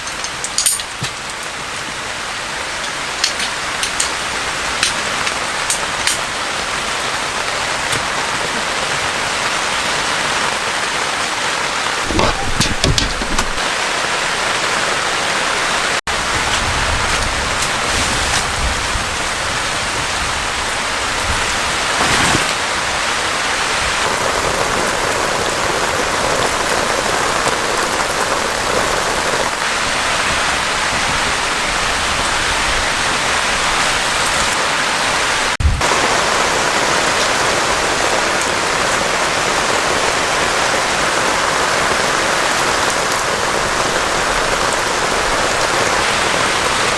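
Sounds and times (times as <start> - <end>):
heavy rain falling: 0.0 - 46.9
short low thump: 12.1 - 13.7.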